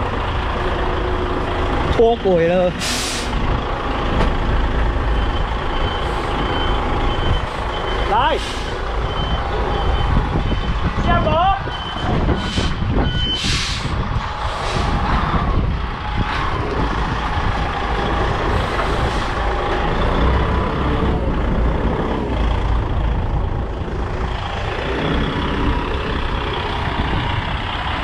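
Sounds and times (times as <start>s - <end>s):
diesel truck engine running: 0.0s - 28.0s
air brake hisses: 2.8s - 3.4s, 12.4s - 12.8s, 13.4s - 13.9s.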